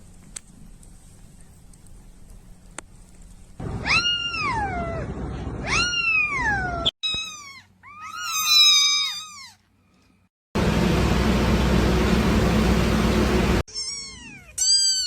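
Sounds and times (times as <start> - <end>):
kittens meowing: 5.6 - 9.6.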